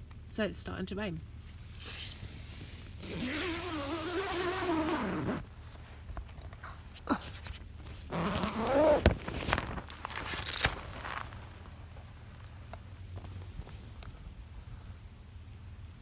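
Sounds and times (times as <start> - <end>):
tent zip pulled open: 2.9 - 5.8, 7.2 - 11.4.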